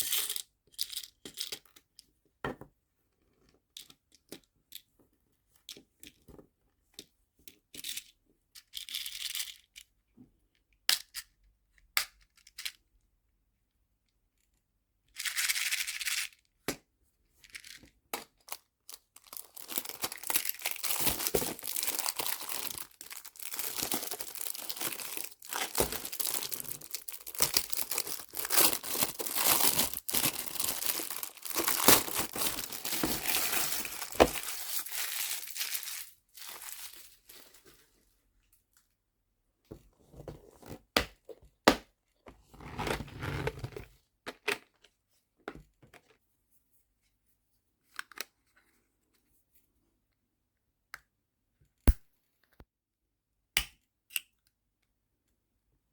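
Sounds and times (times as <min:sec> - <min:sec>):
packaging crinkling and rustling: 0:18.9 - 0:37.8.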